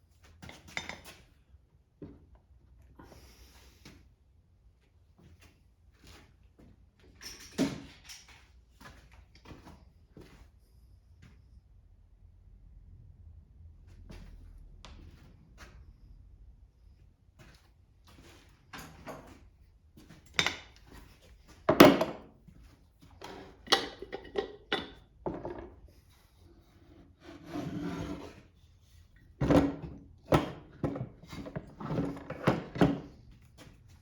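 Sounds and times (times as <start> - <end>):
tools knocking on workbench: 21.7 - 22.3, 23.3 - 25.8
scraping slide: 26.7 - 28.5.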